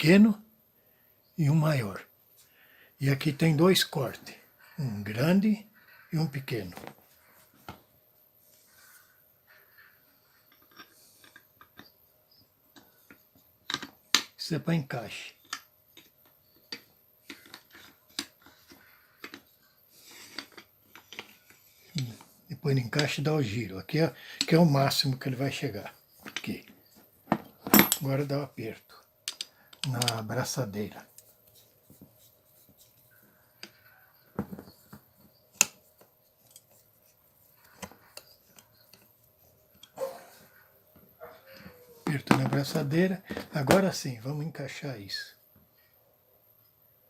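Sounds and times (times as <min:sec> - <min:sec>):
clicks of parts being handled: 0:13.1 - 0:14.4, 0:15.4 - 0:19.5, 0:20.2 - 0:22.1, 0:29.2 - 0:30.2
metal parts clicking: 0:27.6 - 0:28.3.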